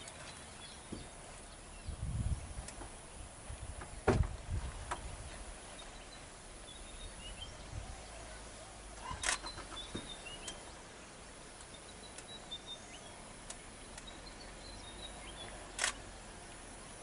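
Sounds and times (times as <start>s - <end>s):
faint ticks: 9.0s - 10.7s, 11.5s - 12.6s, 13.4s - 14.2s
sharp loud click: 9.2s - 10.6s, 15.8s - 16.0s.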